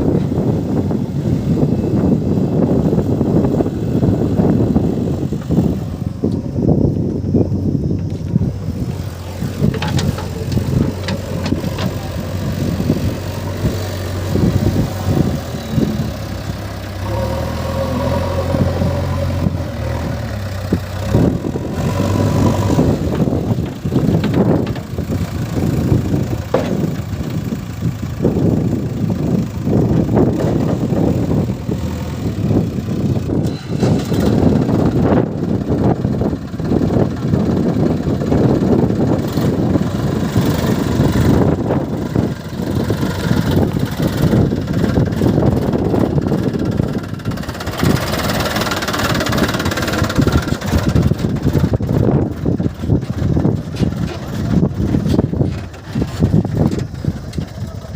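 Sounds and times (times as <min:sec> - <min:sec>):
diesel engine revving: 0:00.0 - 0:57.9
knocks and clatter: 0:09.6 - 0:12.2, 0:23.1 - 0:25.0, 0:26.4 - 0:27.2.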